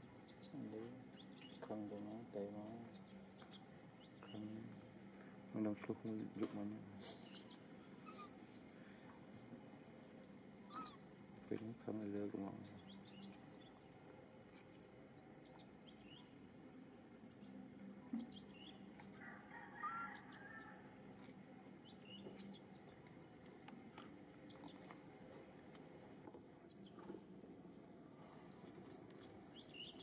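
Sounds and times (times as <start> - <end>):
steady low hum: 0.0 - 19.6, 20.2 - 30.0
high bird chirps: 10.6 - 11.0.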